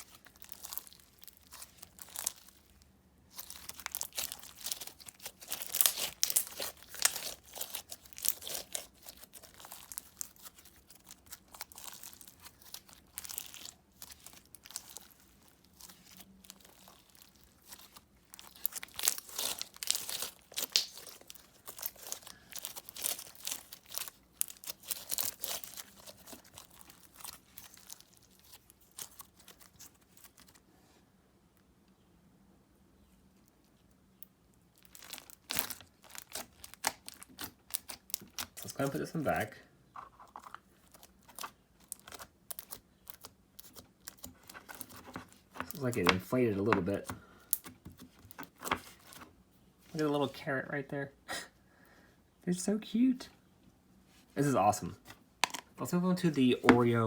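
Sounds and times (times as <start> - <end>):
crackling and clicking pops: 20.5 - 21.1.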